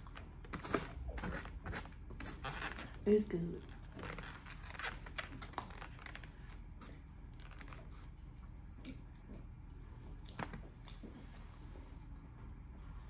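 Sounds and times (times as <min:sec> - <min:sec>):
chewing with wet mouth clicks: 0:08.4 - 0:11.1.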